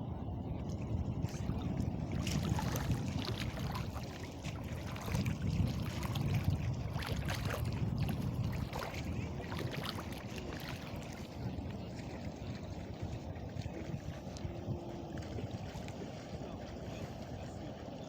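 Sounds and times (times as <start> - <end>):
wind rumble on microphone: 0.0 - 18.0
water splashing and lapping: 0.5 - 18.0.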